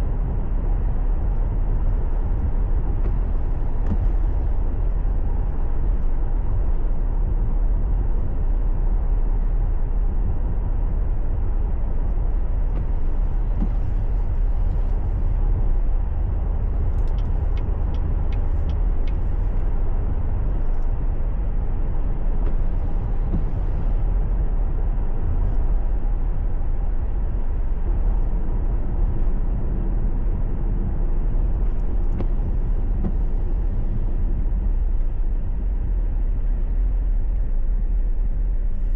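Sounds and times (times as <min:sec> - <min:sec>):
car engine rumble: 0:00.0 - 0:38.9
tyre noise on road: 0:00.0 - 0:38.9.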